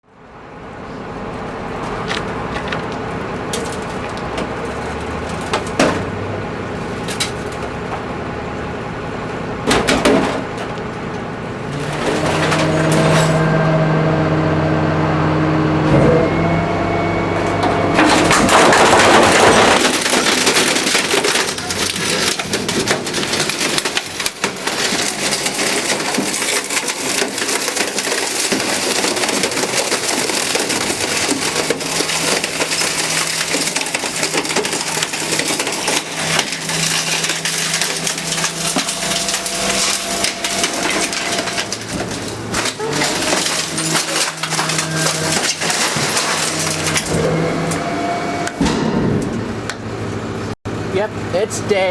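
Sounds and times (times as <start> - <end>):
truck engine and hydraulics whine: 0.0 - 51.8
crunching and splintering: 1.7 - 7.9, 11.6 - 13.8, 17.6 - 49.8
sharp cracks: 18.0 - 47.2.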